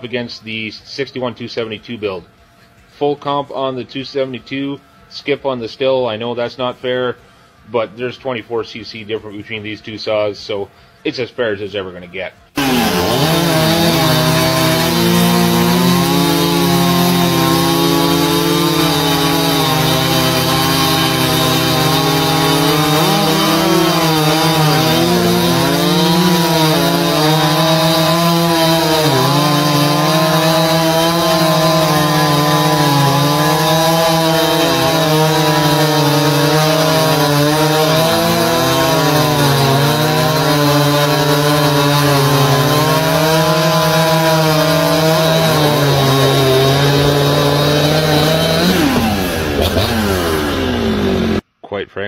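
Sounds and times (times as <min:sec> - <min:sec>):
chainsaws cutting wood: 0:12.6 - 0:51.4.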